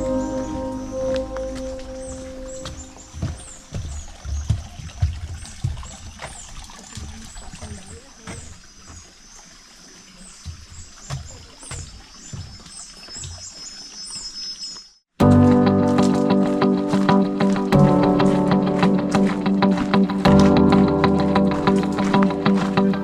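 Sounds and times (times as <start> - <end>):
high falling chirps: 0.0 - 4.0
low thumps: 0.0 - 5.8
water trickling and splashing: 0.0 - 14.7, 15.3 - 23.0.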